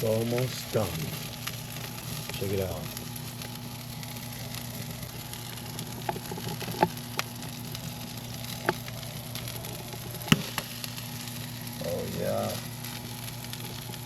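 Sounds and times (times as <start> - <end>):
corn sizzling on a grill: 0.0 - 14.0
sharp cracks: 10.2 - 11.4.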